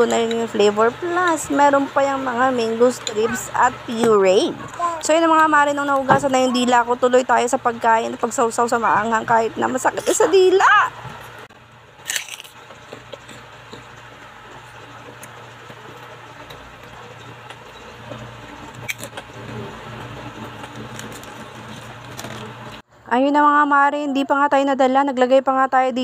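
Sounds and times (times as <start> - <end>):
crunchy food being chewed: 12.0 - 13.9.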